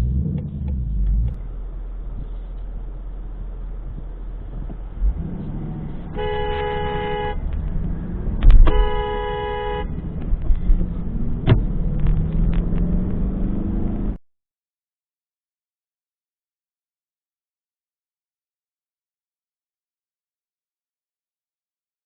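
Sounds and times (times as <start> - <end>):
engine and road rumble: 0.0 - 14.2
two-note car horn honking: 6.1 - 7.5, 8.6 - 9.9.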